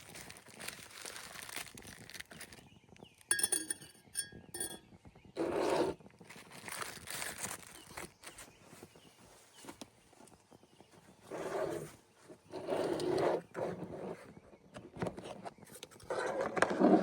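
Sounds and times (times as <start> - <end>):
dishware clinking: 3.3 - 4.8
soft rustling: 5.6 - 14.3.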